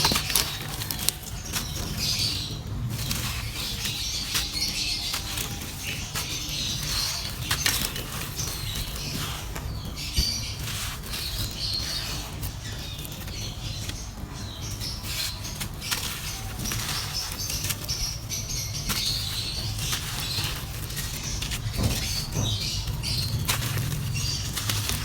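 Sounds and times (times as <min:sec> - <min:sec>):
dry clay being crushed: 0:00.0 - 0:25.0.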